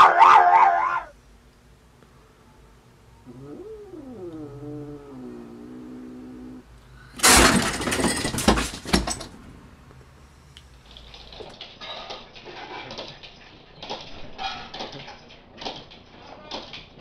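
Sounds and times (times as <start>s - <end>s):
cat calling: 0.0s - 1.1s
crash and clatter: 7.2s - 9.5s.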